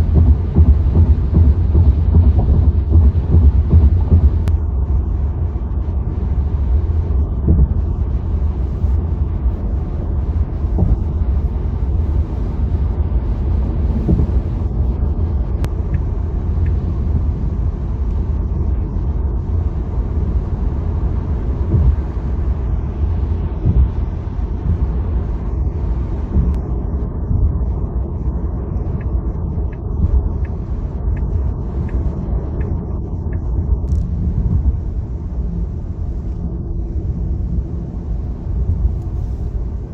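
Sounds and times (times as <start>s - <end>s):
tyre and wind noise: 0.0s - 4.6s, 6.2s - 18.1s, 20.5s - 28.1s.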